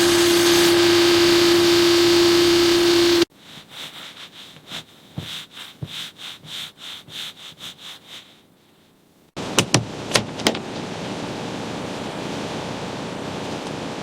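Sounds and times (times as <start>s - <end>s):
machine humming: 0.0s - 3.3s
hand scrubbing strokes: 0.0s - 9.1s.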